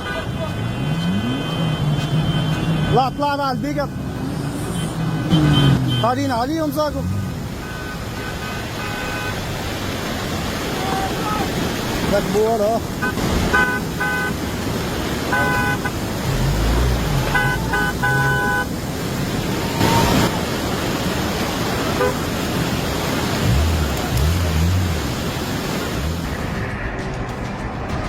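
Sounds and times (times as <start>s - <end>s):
vehicle horns honking: 0.0s - 3.2s, 4.7s - 6.4s, 7.5s - 9.6s, 13.0s - 14.5s, 15.2s - 18.8s, 21.9s - 22.4s, 23.4s - 25.0s
steady rushing noise: 6.3s - 28.0s.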